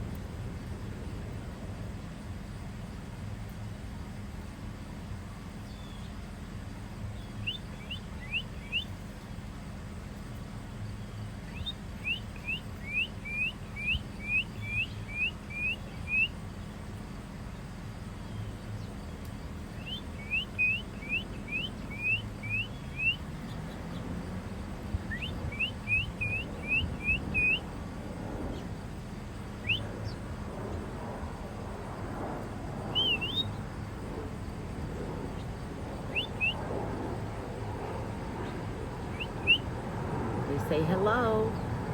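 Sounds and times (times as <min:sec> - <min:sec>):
songbird whistling song: 0:05.6 - 0:06.2, 0:07.1 - 0:09.0, 0:10.9 - 0:16.8, 0:18.2 - 0:24.0, 0:24.9 - 0:27.8, 0:29.5 - 0:30.2, 0:32.9 - 0:33.6, 0:35.3 - 0:36.7, 0:38.4 - 0:39.7.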